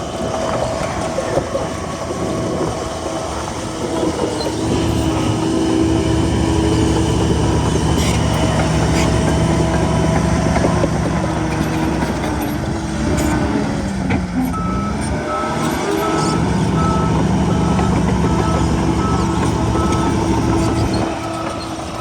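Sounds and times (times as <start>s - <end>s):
bulldozer diesel engine running: 0.0s - 22.0s
reversing alarm beeping: 14.5s - 22.0s.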